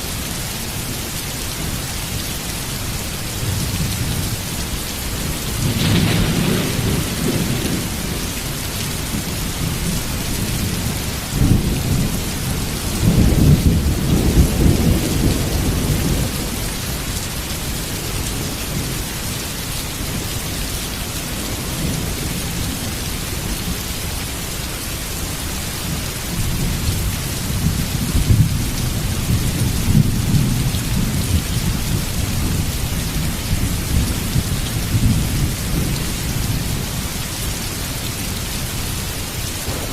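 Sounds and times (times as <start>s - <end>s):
heavy rain pouring: 0.0s - 39.9s
thunder rumbling: 3.6s - 17.1s, 39.5s - 39.9s.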